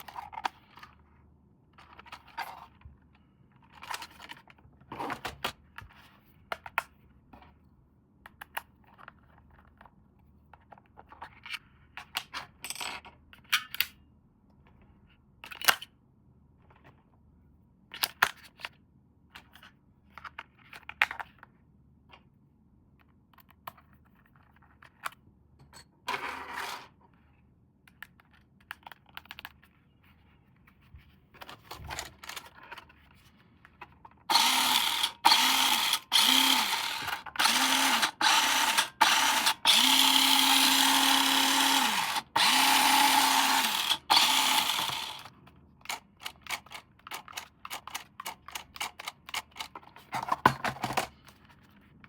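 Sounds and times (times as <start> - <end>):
plastic parts clicking and rattling: 31.4 - 51.7
toy car electric motor whirring: 34.3 - 45.3.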